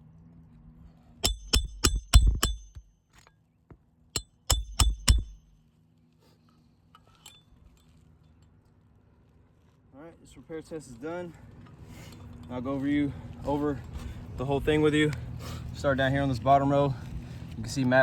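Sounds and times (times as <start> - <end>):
hammer striking roofing nails: 1.2 - 2.9, 4.2 - 5.5.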